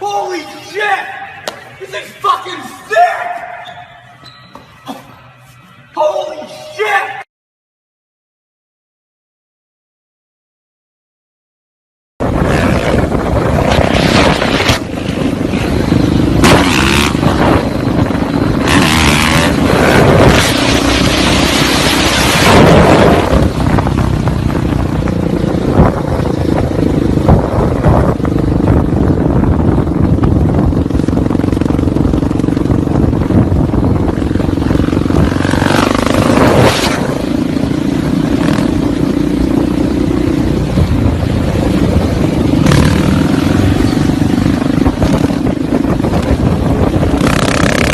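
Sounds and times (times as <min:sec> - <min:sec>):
loud rushing noise: 0:12.2 - 0:47.9
motorcycle engine running: 0:12.2 - 0:47.9.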